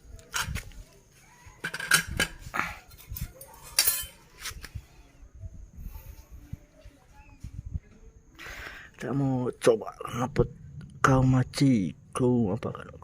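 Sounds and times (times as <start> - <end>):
metal clinks and scrapes: 1.6 - 4.7.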